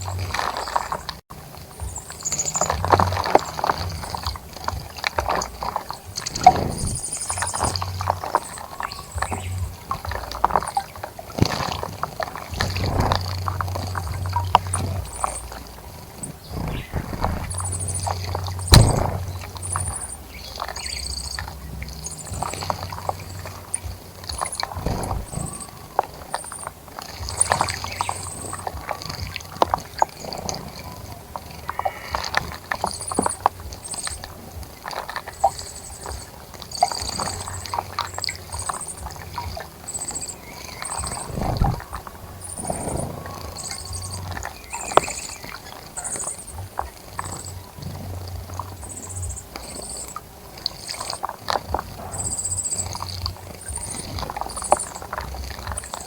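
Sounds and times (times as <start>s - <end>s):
birds splashing in water: 0.0s - 56.0s
sharp knocks: 18.7s - 19.4s.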